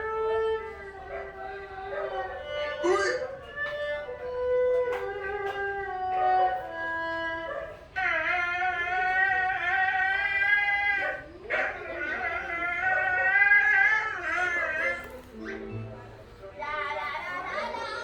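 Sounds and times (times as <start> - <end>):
tv music with held notes: 15.3 - 17.8.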